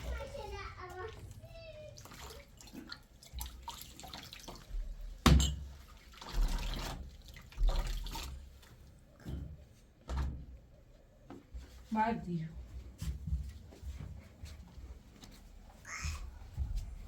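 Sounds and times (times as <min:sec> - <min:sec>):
water splashing and dripping: 0:00.1 - 0:09.0.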